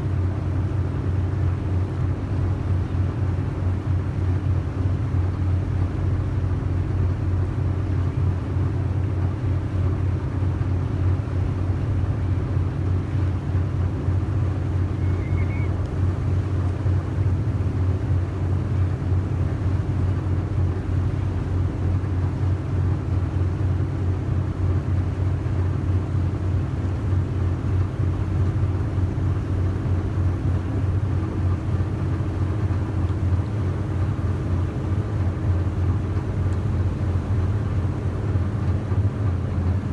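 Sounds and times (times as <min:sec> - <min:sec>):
boat engine droning: 0:10.1 - 0:39.9.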